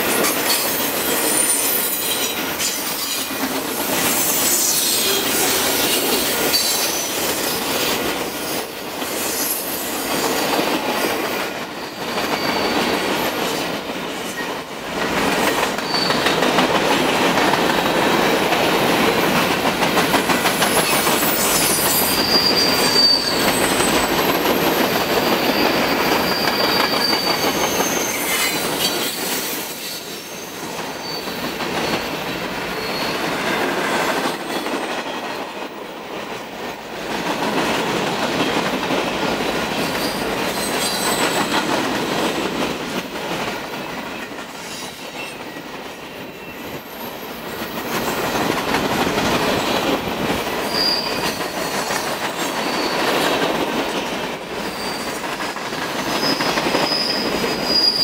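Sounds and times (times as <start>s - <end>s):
train wheels rumbling on rail: 0.0s - 58.0s
high-pitched wheel squeals: 15.8s - 16.3s, 20.8s - 24.1s, 25.3s - 32.1s, 50.6s - 51.8s, 56.1s - 58.0s.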